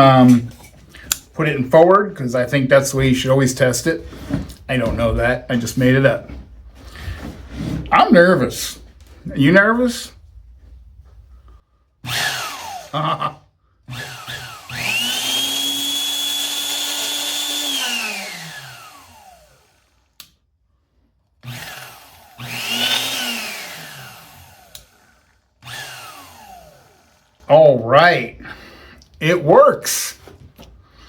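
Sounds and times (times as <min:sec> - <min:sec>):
electric drill motor whining: 0:12.0 - 0:13.0, 0:13.9 - 0:20.2, 0:21.4 - 0:27.5.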